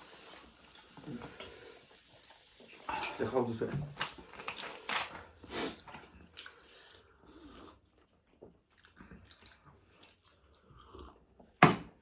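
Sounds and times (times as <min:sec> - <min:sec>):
chewing and biting: 0:06.0 - 0:11.6.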